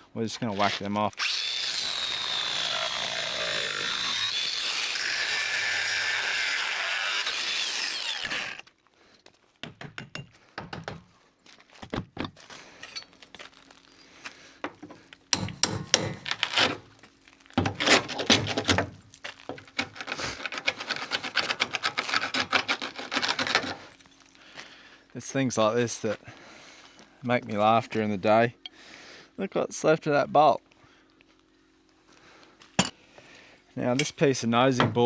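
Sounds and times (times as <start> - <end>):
power tool cutting bolts: 0.6 - 8.6, 14.6 - 17.0, 17.6 - 24.1
metal and timber clattering: 17.6 - 23.8.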